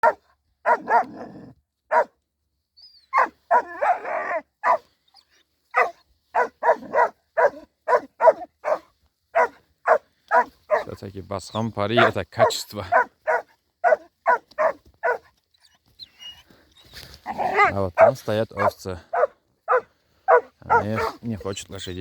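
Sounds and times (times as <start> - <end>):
dogs barking deeply: 0.0 - 1.2, 5.7 - 11.0, 11.6 - 15.2, 17.3 - 21.3.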